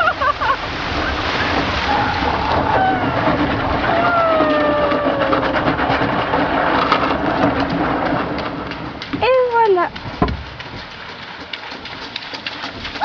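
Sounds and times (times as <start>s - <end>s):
engine hum: 0.0s - 13.0s
rushing splashing water: 0.0s - 13.0s
long falling voice call: 1.8s - 5.7s.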